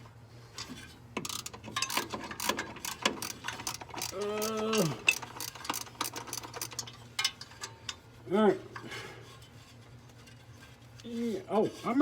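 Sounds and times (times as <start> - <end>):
ratchet wrench clicking: 1.2 - 7.3.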